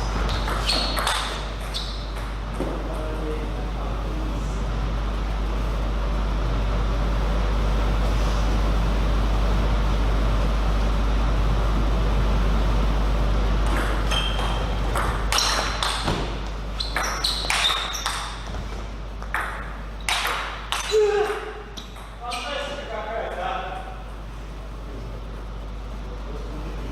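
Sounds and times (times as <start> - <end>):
steady hum: 0.0 - 26.9
table tennis ball hits: 0.2 - 2.8, 13.6 - 18.6, 19.2 - 22.2.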